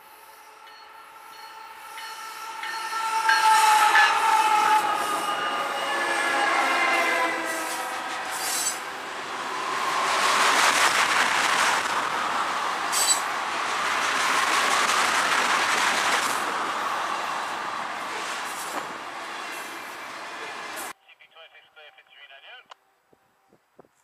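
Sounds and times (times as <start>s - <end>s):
wheels rumbling on rail: 0.2s - 20.9s
high wheel squeal: 0.7s - 10.4s, 12.9s - 13.3s.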